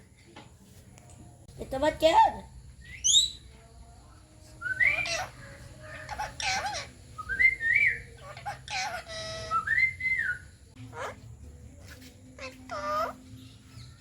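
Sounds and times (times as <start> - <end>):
parrot whistling and chattering: 4.7 - 11.2, 12.4 - 13.3.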